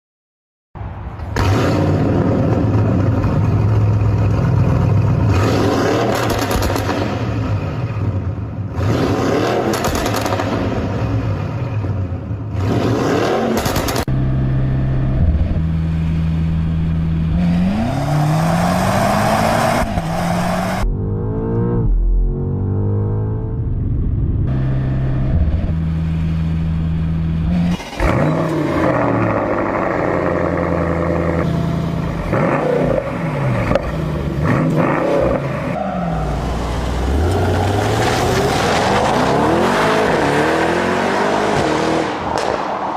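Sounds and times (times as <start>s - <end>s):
car engine revving: 1.4s - 42.9s.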